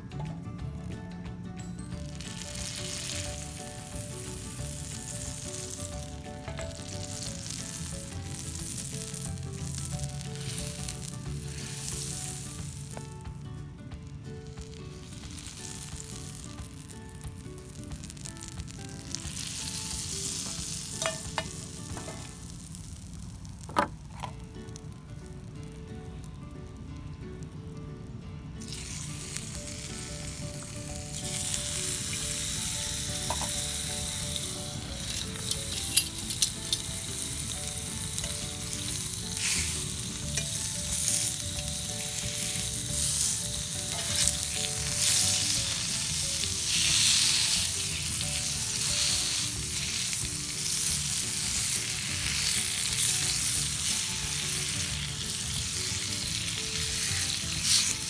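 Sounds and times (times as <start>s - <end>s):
mushrooms sizzling in a frying pan: 1.9s - 58.0s.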